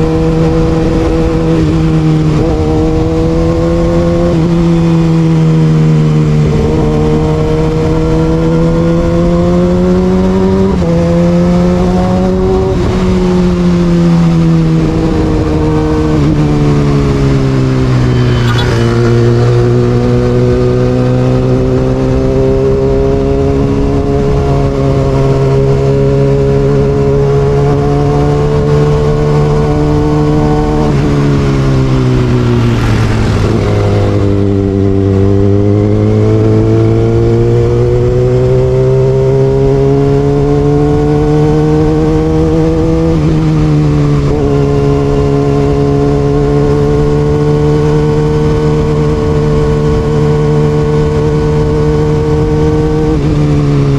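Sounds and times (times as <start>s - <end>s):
motorcycle engine running: 14.7s - 25.3s, 26.4s - 39.8s.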